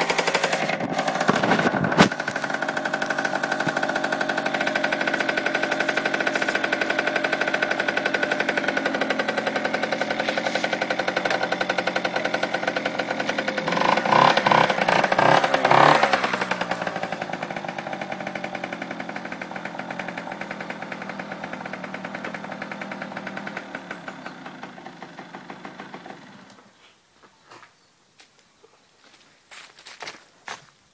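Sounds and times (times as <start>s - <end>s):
engine throttle blips: 0.0s - 26.6s
two-stroke engine idling: 0.0s - 26.7s.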